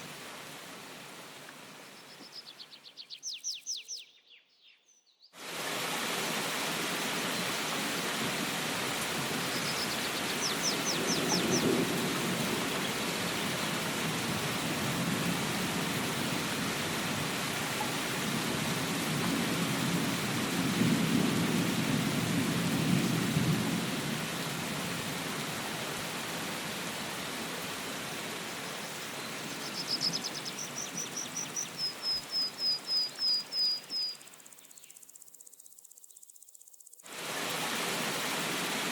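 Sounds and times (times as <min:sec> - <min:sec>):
steady rain: 0:00.0 - 0:02.5, 0:05.4 - 0:34.7, 0:37.0 - 0:38.9
bird chirping: 0:01.8 - 0:05.4, 0:09.5 - 0:11.8, 0:29.4 - 0:37.0
low thunder rumbles: 0:10.7 - 0:17.5.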